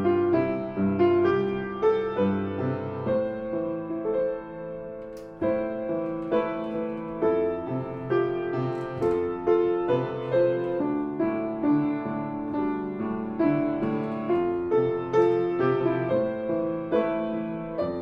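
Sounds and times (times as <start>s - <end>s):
piano melody: 0.0s - 18.0s.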